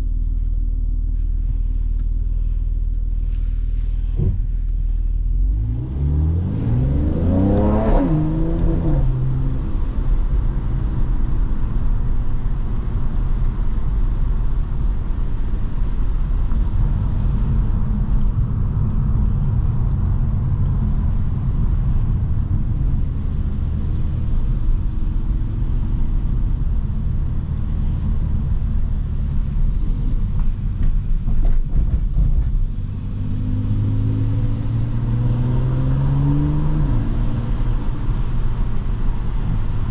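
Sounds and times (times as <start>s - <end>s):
car engine and exhaust accelerating: 0.0s - 39.9s.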